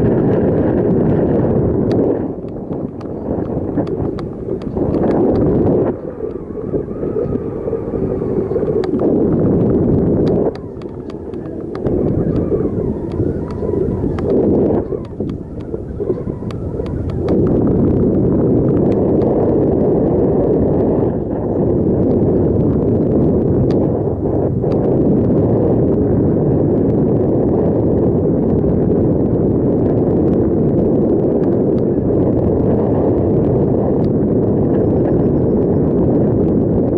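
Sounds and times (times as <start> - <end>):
wind buffeting microphone: 0.0 - 36.9
faint ticks: 8.5 - 17.6.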